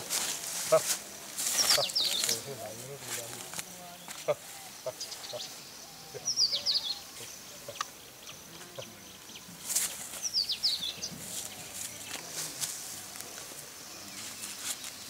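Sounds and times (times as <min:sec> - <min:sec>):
rural outdoor ambience: 0:00.0 - 0:15.0.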